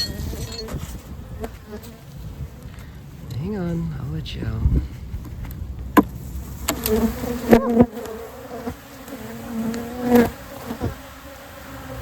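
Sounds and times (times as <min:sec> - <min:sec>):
bees buzzing: 0:06.0 - 0:12.0.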